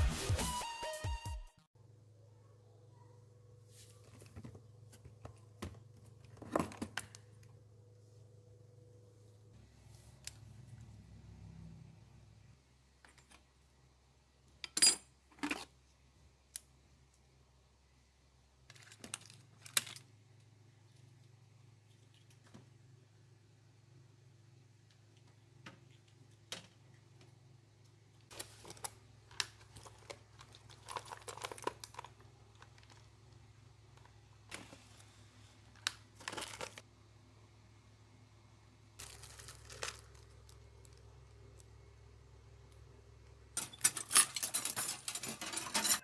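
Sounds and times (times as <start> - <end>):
faint low hum: 1.8 - 46.0
crinkling rustling handling noises: 18.6 - 20.0, 28.3 - 36.9, 39.0 - 41.7.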